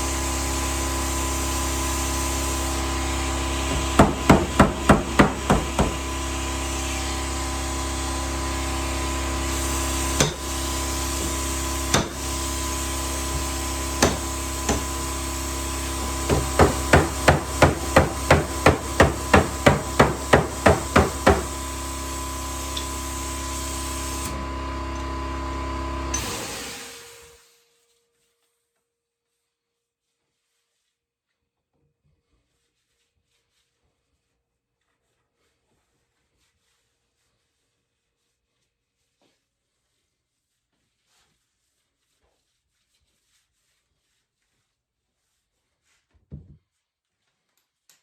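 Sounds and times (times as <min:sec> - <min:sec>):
hammer tapping on sheet metal: 0:03.7 - 0:06.1, 0:12.0 - 0:12.2, 0:14.0 - 0:14.9, 0:16.0 - 0:21.6.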